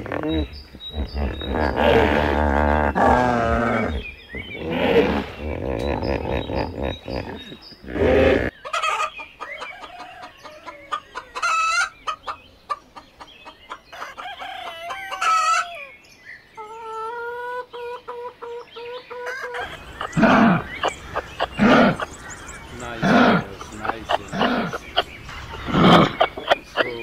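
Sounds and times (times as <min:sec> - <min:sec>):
deep animal roar: 0:00.0 - 0:08.5, 0:19.6 - 0:25.0, 0:25.6 - 0:26.5
chickens clucking: 0:05.2 - 0:15.9, 0:16.6 - 0:27.0.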